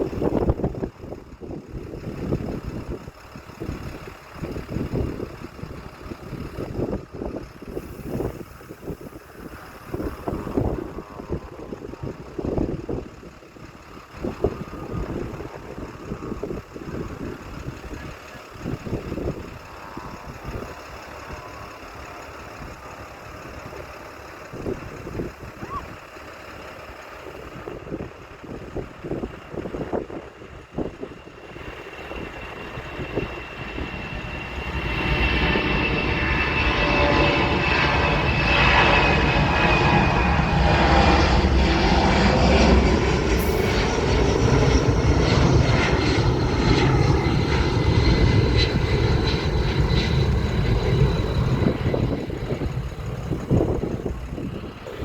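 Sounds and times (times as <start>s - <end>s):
airplane engines whining: 0.0s - 55.0s.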